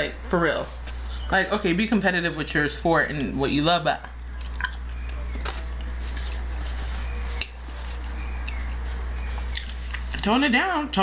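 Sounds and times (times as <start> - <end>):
low hum: 0.0 - 10.3
person chewing food: 4.0 - 10.2.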